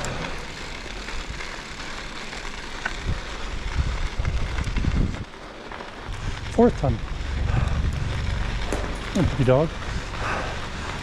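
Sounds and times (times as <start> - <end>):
bicycle tyres rolling on gravel: 0.0 - 11.0
wind buffeting microphone: 3.0 - 5.4, 6.0 - 11.0.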